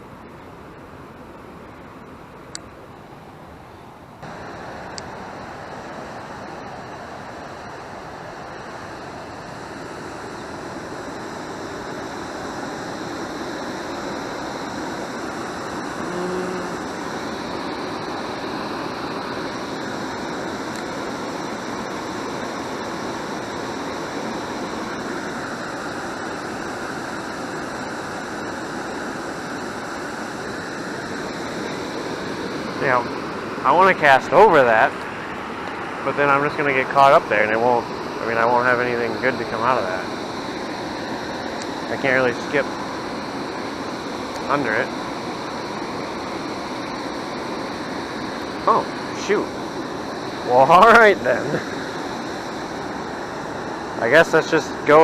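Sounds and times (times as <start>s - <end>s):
rush of falling water: 4.2s - 55.0s.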